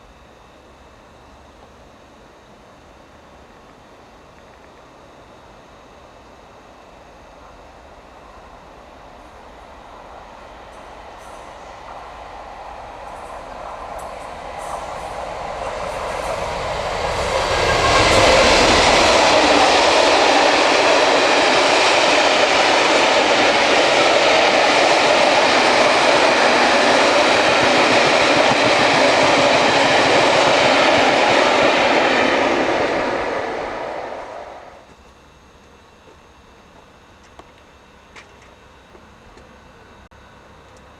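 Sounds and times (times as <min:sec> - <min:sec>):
train rushing past: 0:07.7 - 0:34.9.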